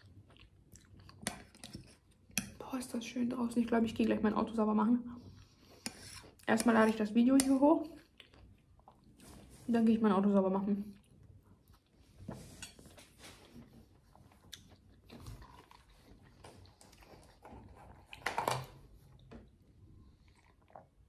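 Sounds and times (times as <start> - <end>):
person chewing: 0.0 - 2.3, 7.9 - 9.4, 14.1 - 18.2.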